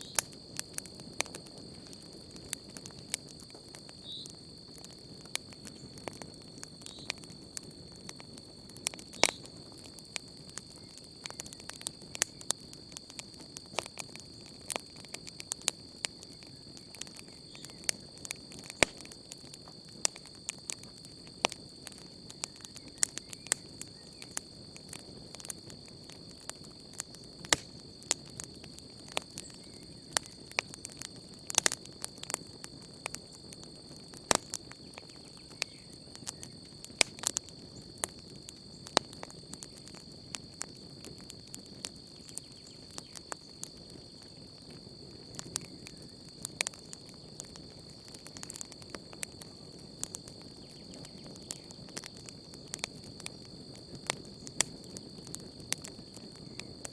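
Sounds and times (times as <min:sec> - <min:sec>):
campfire crackling and popping: 0:00.0 - 0:56.9
crickets chirring: 0:00.0 - 0:56.9.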